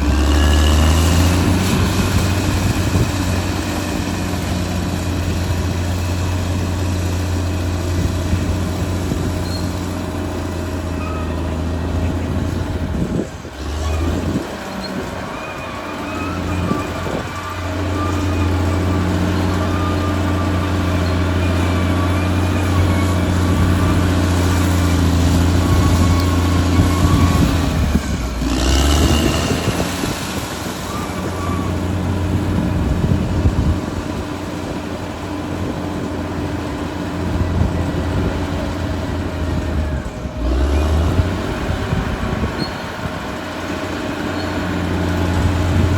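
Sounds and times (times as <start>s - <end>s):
bulldozer diesel engine running: 0.0s - 45.9s
thin wavering squeal: 9.3s - 34.4s, 37.2s - 45.9s.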